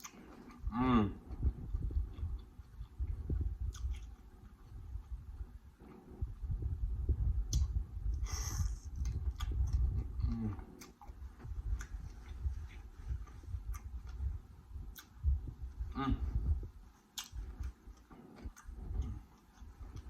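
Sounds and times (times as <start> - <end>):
close chewing and wet mouth sounds: 0.0 - 20.0
person humming mm: 0.6 - 1.4, 10.2 - 10.7, 15.9 - 16.6.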